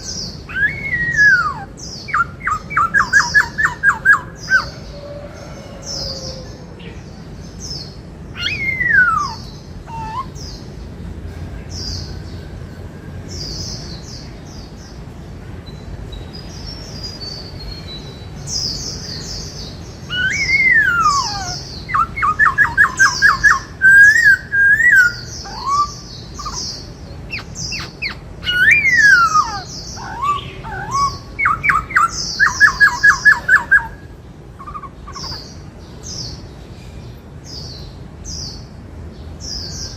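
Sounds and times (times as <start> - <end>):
bird singing whistles and trills: 0.0 - 5.1, 7.7 - 10.7, 15.7 - 36.4.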